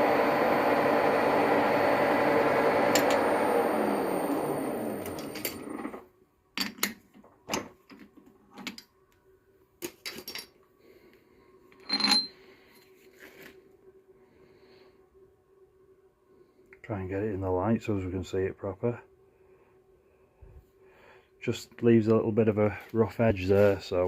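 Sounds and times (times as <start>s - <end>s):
lathe running: 0.0s - 6.0s
faint steady hum: 0.0s - 24.0s
steel parts clinking on metal: 9.8s - 10.6s, 11.8s - 12.4s.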